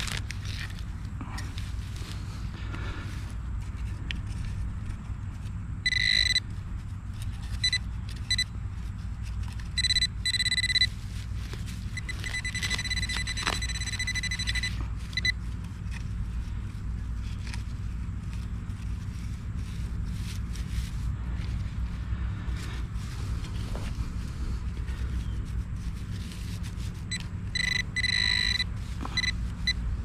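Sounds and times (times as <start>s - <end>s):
pinpointer high electronic tone: 5.8s - 6.4s, 9.8s - 10.9s, 12.0s - 15.4s, 27.1s - 29.8s.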